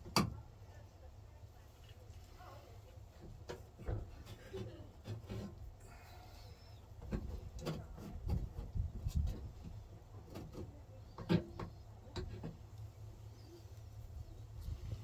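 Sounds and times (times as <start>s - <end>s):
clicks and knocks on metal and plastic: 0.0s - 0.4s, 7.0s - 12.6s.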